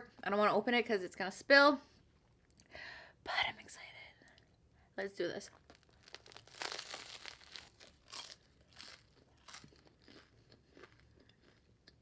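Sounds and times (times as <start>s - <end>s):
crunchy sandwich bite: 5.7s - 11.8s
crunchy chewing: 5.7s - 12.0s.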